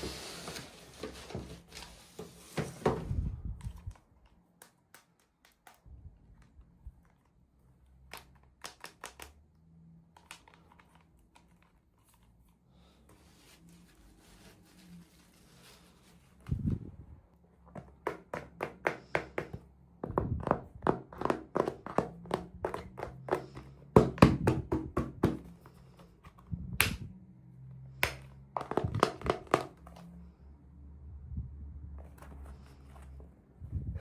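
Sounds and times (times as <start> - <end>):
plastic toy pieces tapping and clicking: 8.1 - 9.4.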